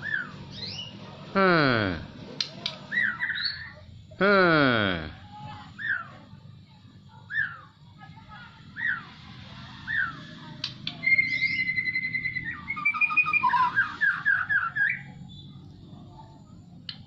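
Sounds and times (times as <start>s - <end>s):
songbird singing trills: 2.8s - 3.9s, 5.8s - 6.2s, 7.2s - 7.8s, 8.7s - 15.8s.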